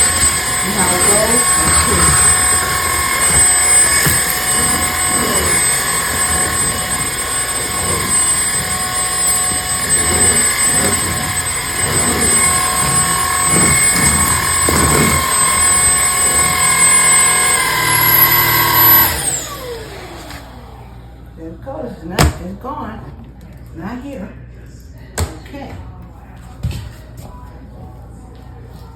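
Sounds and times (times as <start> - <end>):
vacuum motor whine: 0.0 - 21.2.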